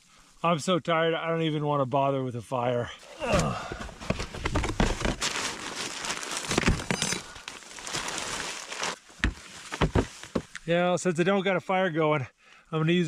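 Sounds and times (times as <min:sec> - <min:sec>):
gear rustling and crinkling: 0:03.3 - 0:10.7.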